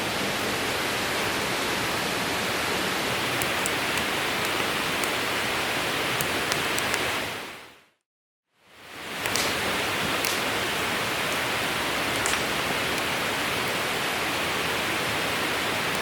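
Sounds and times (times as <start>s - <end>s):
steady rushing noise: 8.9s - 16.0s.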